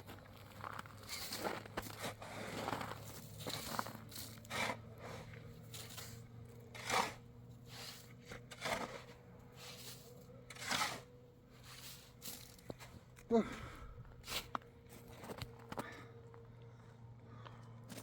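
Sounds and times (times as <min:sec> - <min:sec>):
scraping rustling strokes: 0:01.0 - 0:12.9
faint steady hum: 0:02.0 - 0:18.0.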